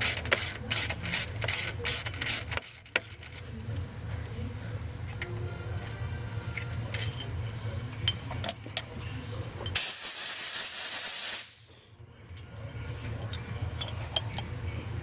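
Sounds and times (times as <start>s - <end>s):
compressed air hiss: 9.8s - 11.7s.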